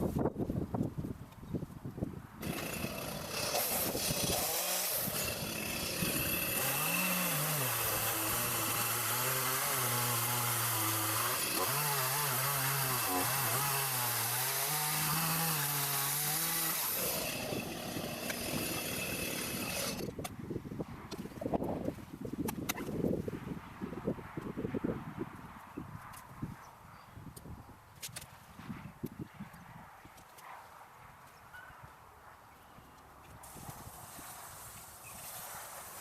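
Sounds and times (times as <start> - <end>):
chainsaw cutting wood: 2.4 - 20.1.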